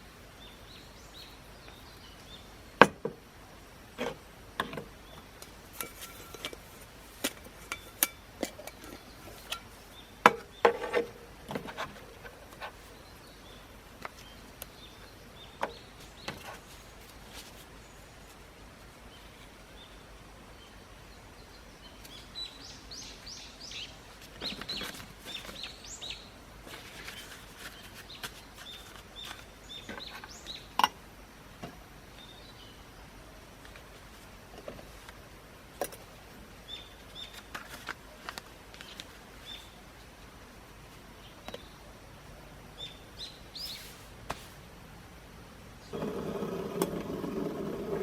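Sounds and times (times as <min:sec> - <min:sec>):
wild birds chirping: 0:00.0 - 0:07.0, 0:08.6 - 0:17.0, 0:17.7 - 0:30.8, 0:36.4 - 0:37.5, 0:38.8 - 0:44.6, 0:45.6 - 0:48.0.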